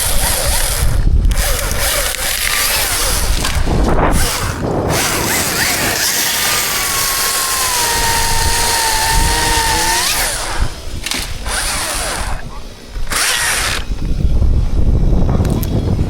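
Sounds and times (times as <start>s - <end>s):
chainsaw running: 0.0s - 14.1s.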